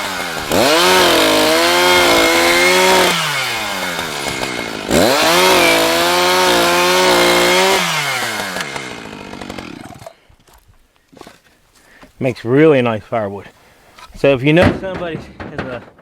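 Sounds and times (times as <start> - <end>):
chainsaw cutting wood: 0.0 - 10.6.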